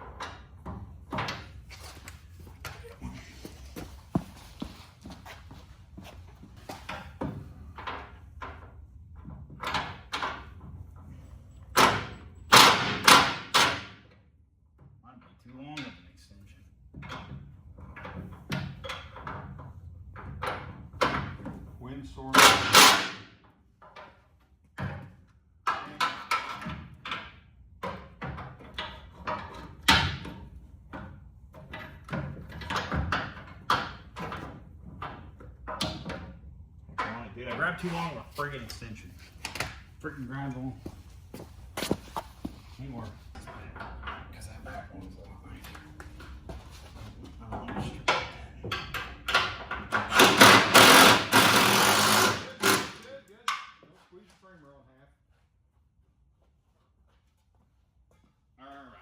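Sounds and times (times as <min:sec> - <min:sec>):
metallic knocks and clanks: 0:06.7 - 0:14.0, 0:22.3 - 0:38.0, 0:47.5 - 0:53.8.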